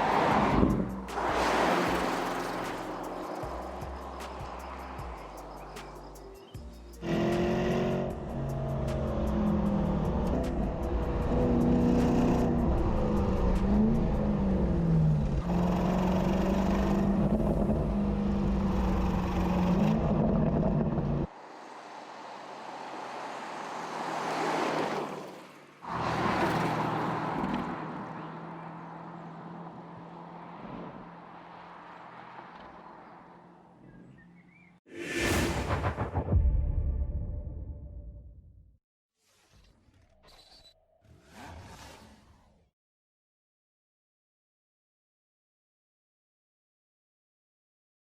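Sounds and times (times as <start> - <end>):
car passing with rushing sweep: 0.0 - 5.1, 21.3 - 27.4, 34.9 - 37.0
car engine revving: 7.0 - 21.3.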